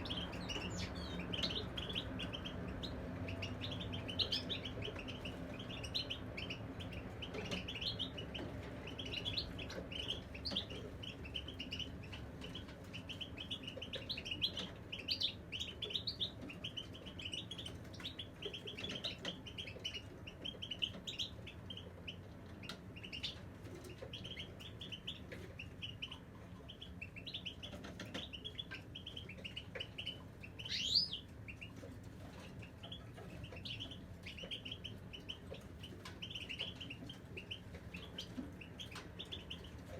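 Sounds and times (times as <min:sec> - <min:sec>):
finch singing rapid twitters: 0:00.0 - 0:39.9.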